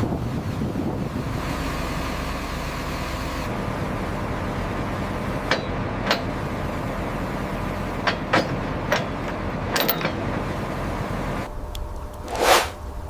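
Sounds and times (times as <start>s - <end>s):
heavy equipment engine running: 0.0s - 13.0s
sharp metal knocks and clanks: 8.0s - 10.2s.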